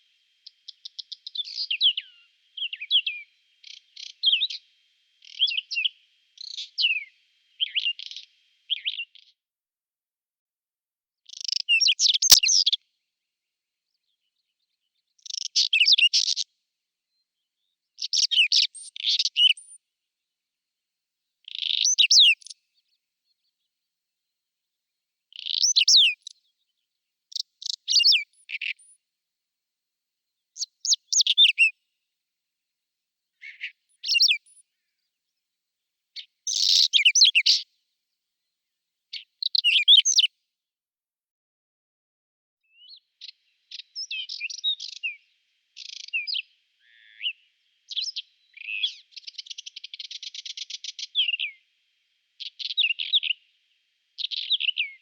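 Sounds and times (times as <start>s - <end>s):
bird singing scratchy phrases: 0.0s - 9.4s, 11.3s - 12.8s, 14.1s - 16.4s, 17.6s - 19.8s, 21.4s - 22.6s, 25.3s - 26.6s, 27.3s - 29.0s, 30.6s - 31.7s, 33.4s - 34.6s, 36.2s - 37.6s, 39.1s - 40.3s, 42.7s - 51.6s, 52.4s - 53.4s, 54.2s - 55.0s.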